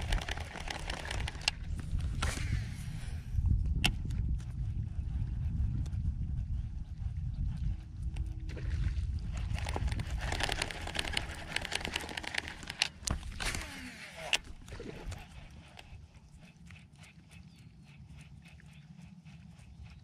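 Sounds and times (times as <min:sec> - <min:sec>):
water splashing against kayak: 0:00.0 - 0:03.0
wind on microphone: 0:00.0 - 0:16.6.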